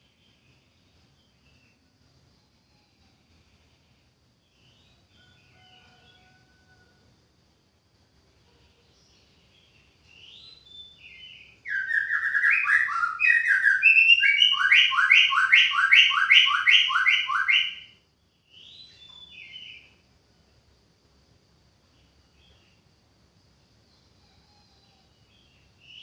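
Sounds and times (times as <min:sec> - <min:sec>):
bird singing: 0:04.4 - 0:06.4, 0:08.8 - 0:20.0, 0:21.8 - 0:22.9, 0:23.8 - 0:26.0.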